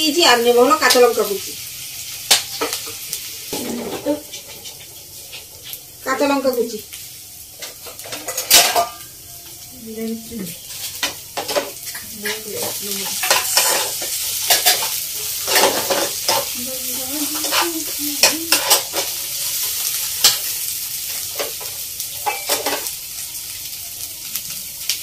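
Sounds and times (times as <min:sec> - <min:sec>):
onions sizzling in oil: 0:00.0 - 0:25.0
spatula scraping and knocking pan: 0:02.3 - 0:05.9, 0:10.6 - 0:20.5.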